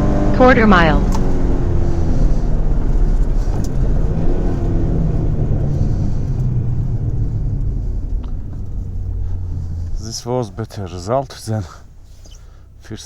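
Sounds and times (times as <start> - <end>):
car engine running: 0.0 - 13.0
road noise: 0.0 - 13.0.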